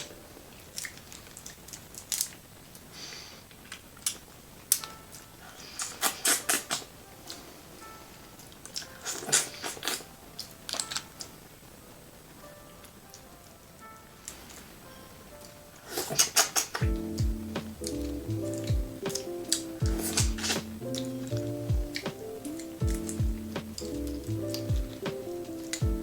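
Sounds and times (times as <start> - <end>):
rapid crackling: 15.8 - 26.0
wet squelching eating: 15.9 - 25.8.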